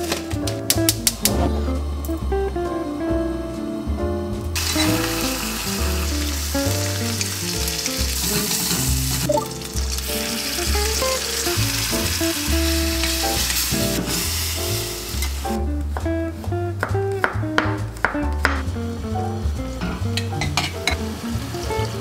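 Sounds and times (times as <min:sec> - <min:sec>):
soft background music: 0:00.0 - 0:22.0
meat sizzling in a pot: 0:04.6 - 0:15.7, 0:19.3 - 0:22.0.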